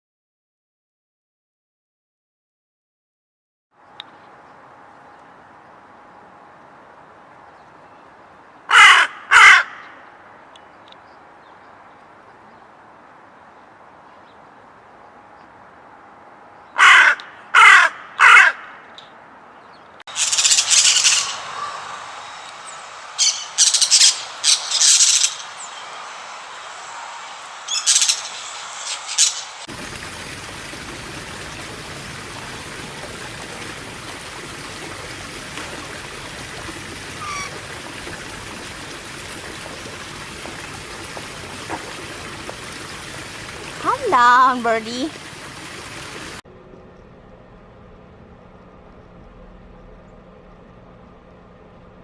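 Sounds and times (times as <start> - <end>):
crow cawing: 8.7 - 10.1, 16.8 - 19.0, 21.0 - 22.0.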